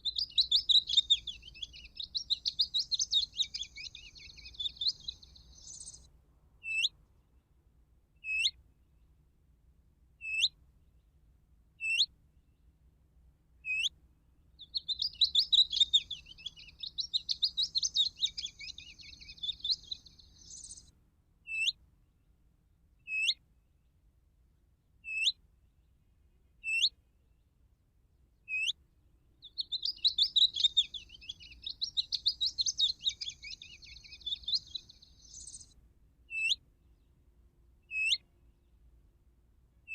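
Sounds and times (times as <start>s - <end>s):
rapid chattering birdsong: 0.0s - 6.0s, 14.6s - 20.9s, 29.4s - 35.7s
short whistled bird call: 29.5s - 36.6s, 37.9s - 38.2s.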